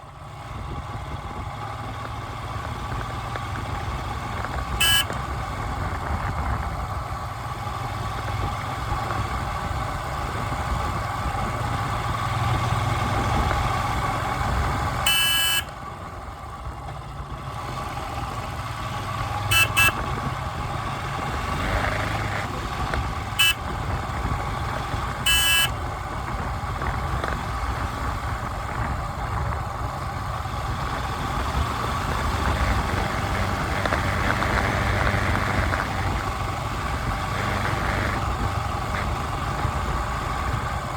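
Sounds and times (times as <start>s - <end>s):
traffic engine rumble: 0.0s - 40.9s
short car horn honks: 4.7s - 5.3s, 15.0s - 15.8s, 19.5s - 20.2s, 23.3s - 23.7s, 25.2s - 25.8s.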